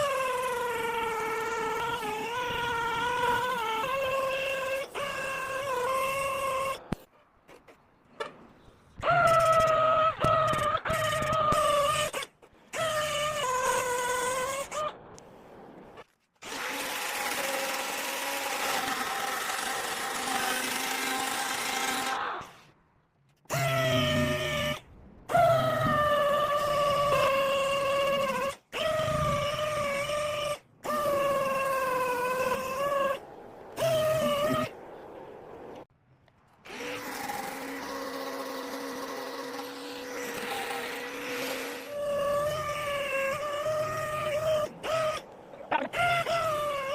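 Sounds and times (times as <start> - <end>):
power tool whine: 0.0 - 7.0, 16.0 - 22.8, 23.5 - 34.7, 36.5 - 45.3
power tool motor running: 16.4 - 22.6, 33.8 - 34.7, 36.6 - 45.2.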